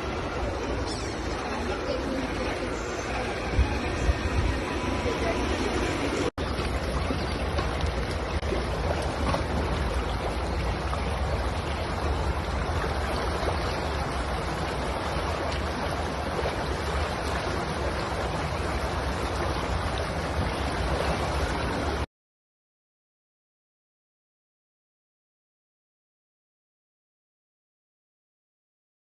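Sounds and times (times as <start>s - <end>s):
water rushing over a weir: 0.0s - 22.1s.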